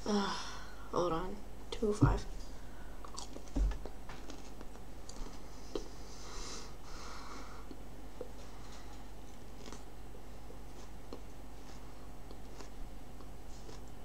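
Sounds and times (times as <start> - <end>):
person chewing with wet mouth clicks: 3.0 - 3.5, 11.0 - 11.3, 12.2 - 14.0
breathing through the nose: 5.5 - 7.7.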